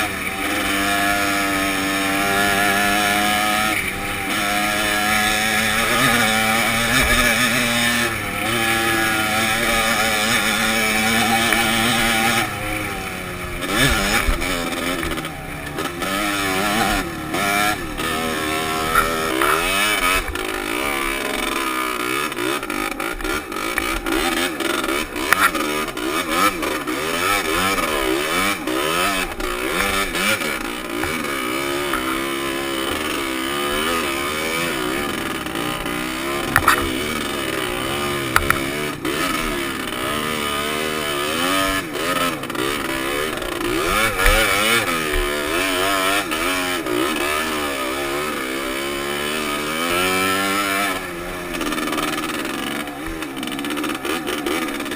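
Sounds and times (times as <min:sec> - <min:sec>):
dirt bike engine revving: 0:00.0 - 0:54.9
sharp knocks and clatters: 0:36.2 - 0:37.4.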